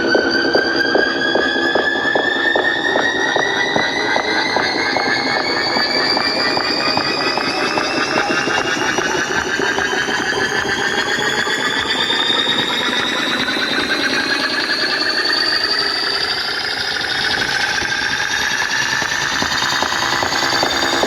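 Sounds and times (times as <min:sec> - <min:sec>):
synthesizer-like buzzing tones: 0:00.0 - 0:11.9.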